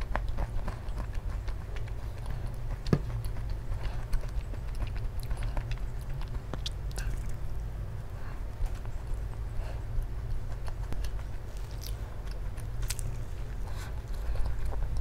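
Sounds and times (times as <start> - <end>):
chewing with wet mouth clicks: 0.0 - 7.7, 8.7 - 15.0
steady low hum: 0.0 - 15.0
biting into crusty bread: 10.0 - 15.0.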